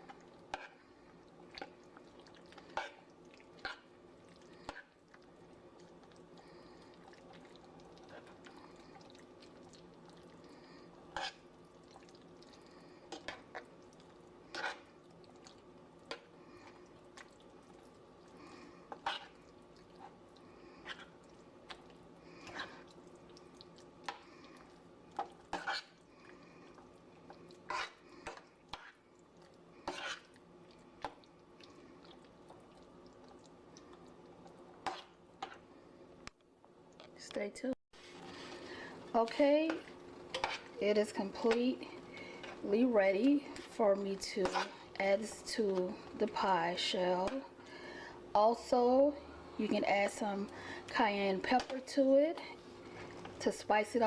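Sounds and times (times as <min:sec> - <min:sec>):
faint steady hum: 0:00.0 - 0:54.0
spoon scraping a pan: 0:00.5 - 0:00.8, 0:11.1 - 0:11.5, 0:14.5 - 0:15.0, 0:18.9 - 0:20.2, 0:25.2 - 0:26.0, 0:27.6 - 0:29.0, 0:29.8 - 0:30.4, 0:34.8 - 0:35.6, 0:39.2 - 0:45.9.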